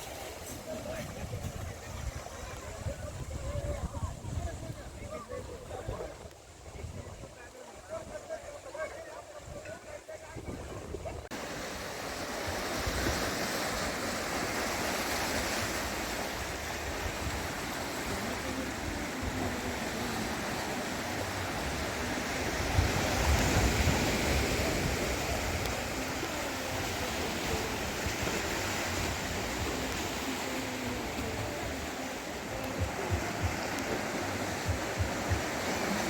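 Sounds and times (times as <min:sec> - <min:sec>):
wind buffeting microphone: 0:00.0 - 0:07.4, 0:10.3 - 0:20.8, 0:21.5 - 0:30.2
sea surf washing on beach: 0:00.0 - 0:36.0.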